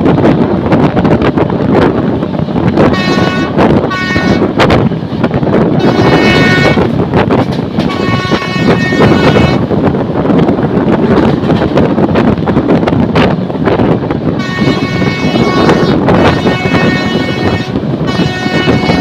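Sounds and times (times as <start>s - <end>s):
train horn blasts: 2.9s - 4.5s, 5.8s - 6.9s, 7.8s - 9.6s, 14.4s - 19.0s.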